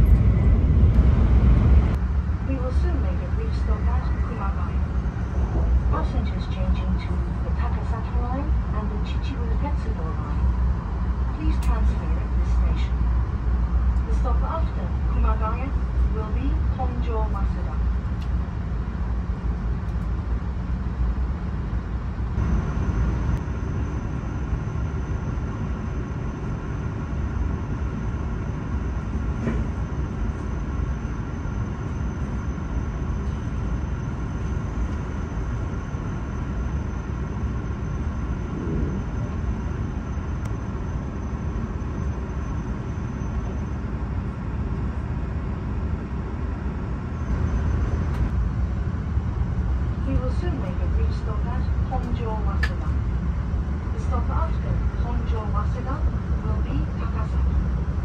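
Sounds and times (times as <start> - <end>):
train cabin rumble: 0.0 - 23.4, 28.6 - 30.8, 37.2 - 41.4, 47.2 - 58.0.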